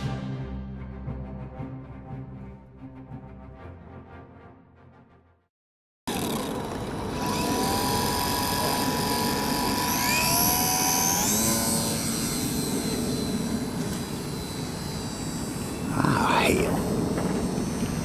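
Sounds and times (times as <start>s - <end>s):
electric motor and propeller whine: 6.1s - 18.0s.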